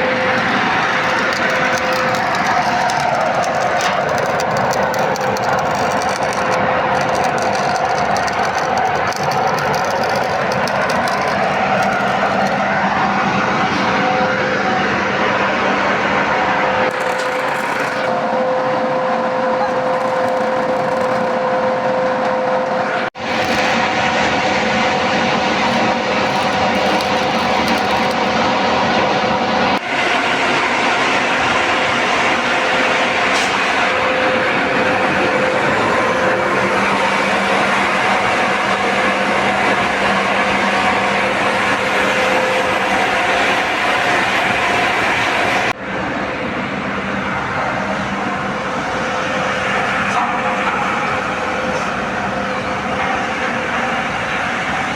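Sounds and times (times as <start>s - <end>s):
metalworking noise: 0.0s - 29.9s, 48.3s - 54.9s
constant hum: 0.0s - 54.9s
industrial machinery running: 0.0s - 54.9s.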